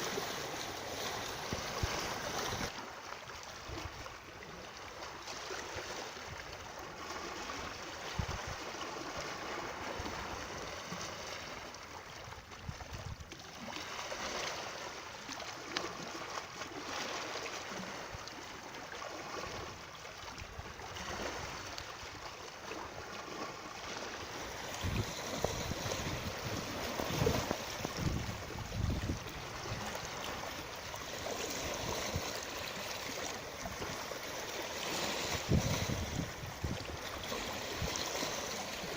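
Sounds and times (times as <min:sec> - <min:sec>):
stream water rushing: 0:00.0 - 0:03.8, 0:20.9 - 0:38.9.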